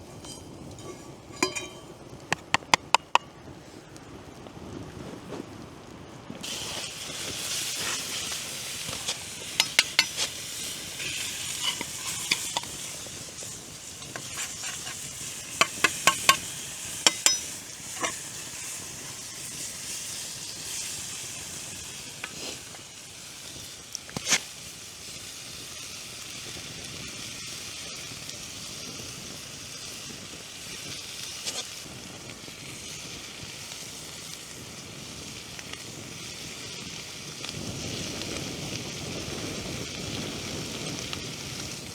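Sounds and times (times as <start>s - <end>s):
food sizzling in a pan: 0.0s - 3.2s, 6.4s - 41.9s
sharp clicks and knocks: 1.4s - 3.3s.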